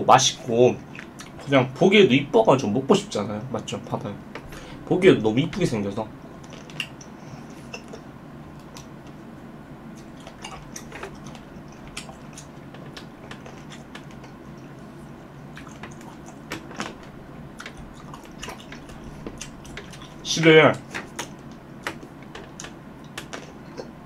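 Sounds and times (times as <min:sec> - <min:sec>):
steady low hum: 0:00.0 - 0:24.0
mouth clicks and smacks: 0:06.4 - 0:08.0, 0:10.0 - 0:14.7, 0:20.9 - 0:24.0
wet chewing of cherries: 0:09.9 - 0:24.0.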